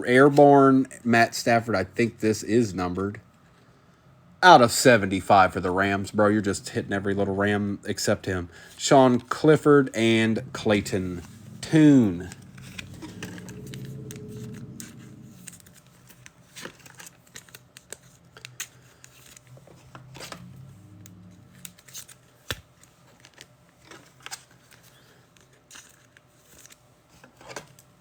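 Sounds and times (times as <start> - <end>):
card wrappers crinkling and ripping: 11.7 - 19.9, 21.5 - 27.8.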